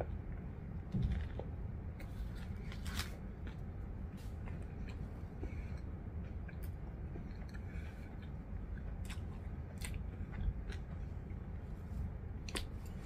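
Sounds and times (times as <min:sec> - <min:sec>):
low steady hum: 0:00.0 - 0:13.0
person chewing food: 0:00.0 - 0:13.0.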